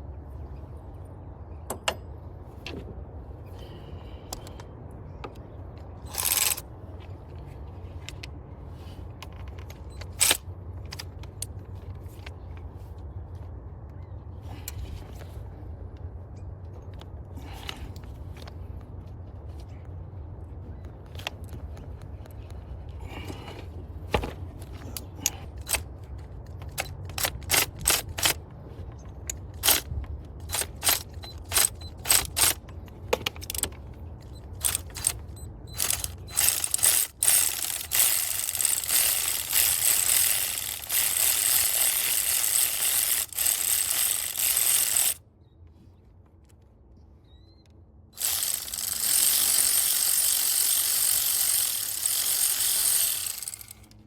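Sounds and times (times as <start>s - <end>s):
socket ratchet clicking: 6.1s - 6.6s, 25.6s - 25.9s, 26.6s - 28.4s, 29.3s - 45.2s, 48.2s - 54.0s.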